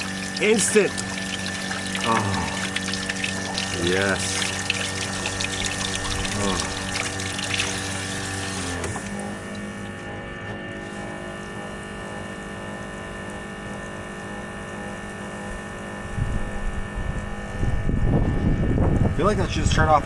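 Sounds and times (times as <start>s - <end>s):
water flowing through hose: 0.0s - 10.1s
electric water pump humming: 0.0s - 20.0s.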